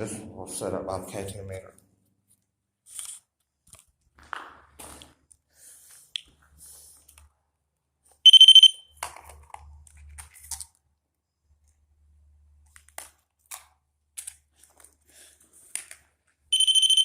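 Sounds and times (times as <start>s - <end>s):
high-pitched electronic alarm tone: 8.3s - 8.8s, 16.5s - 17.0s.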